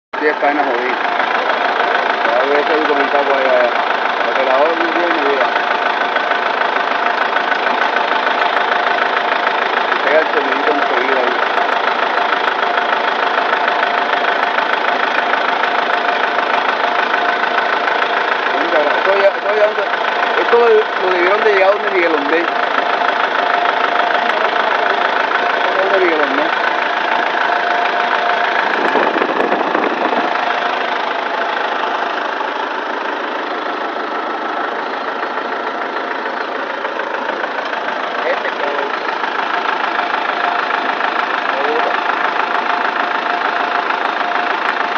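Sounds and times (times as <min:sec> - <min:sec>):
diesel tractor engine idling: 0:00.2 - 0:44.9
fast even knocking tick: 0:01.9 - 0:31.8.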